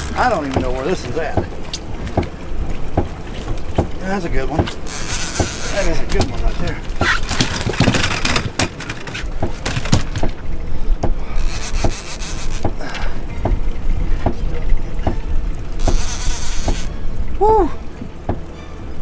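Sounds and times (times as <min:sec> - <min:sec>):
reel drag buzzing: 0:00.0 - 0:10.3, 0:11.2 - 0:14.0, 0:14.9 - 0:17.4
fishing reel clicking: 0:04.8 - 0:05.8, 0:11.4 - 0:12.6, 0:15.8 - 0:16.9.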